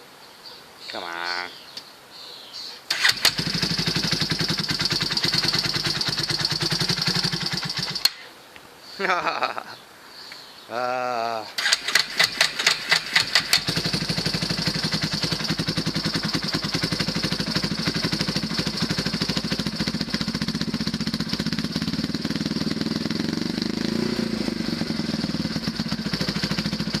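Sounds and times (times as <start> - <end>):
atv engine starting and idling: 2.9 - 8.2, 11.6 - 27.0.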